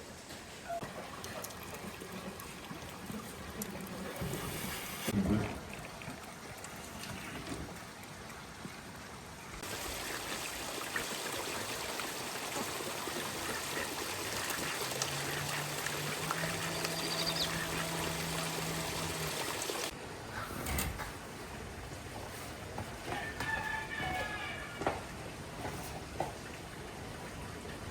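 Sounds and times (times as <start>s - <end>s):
water running: 0.8s - 8.6s, 9.6s - 20.0s.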